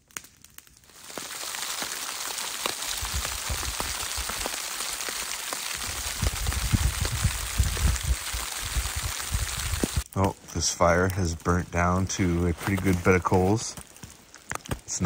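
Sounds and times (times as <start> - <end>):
rain pattering on a tarp: 0.0 - 15.0
low rumbling bumps: 5.8 - 10.0.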